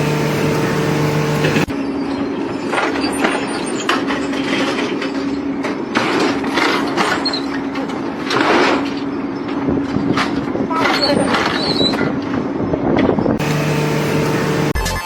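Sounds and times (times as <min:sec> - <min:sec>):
machinery humming: 0:00.0 - 0:11.4, 0:12.1 - 0:14.8
clanks and rattles: 0:02.6 - 0:13.4.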